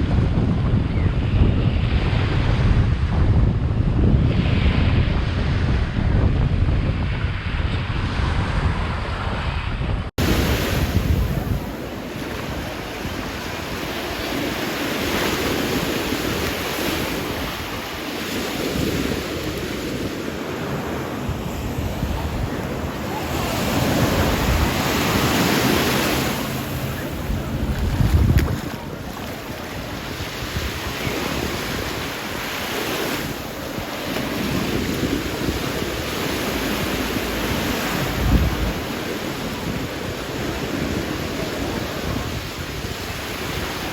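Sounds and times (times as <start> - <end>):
wind buffeting microphone: 0.0 - 43.9
sea waves washing onto beach: 10.2 - 43.9.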